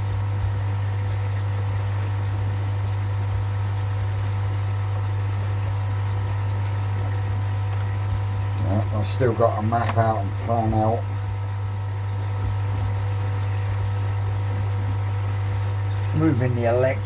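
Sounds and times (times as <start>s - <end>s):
electric air pump humming: 0.0s - 17.0s.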